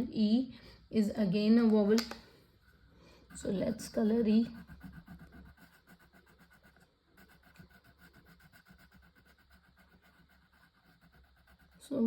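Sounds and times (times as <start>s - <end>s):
colouring strokes scratching on paper: 2.6s - 12.0s.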